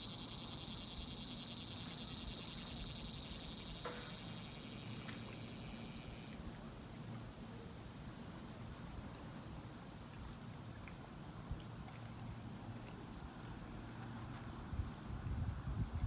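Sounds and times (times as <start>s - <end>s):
wind buffeting microphone: 14.8s - 16.0s.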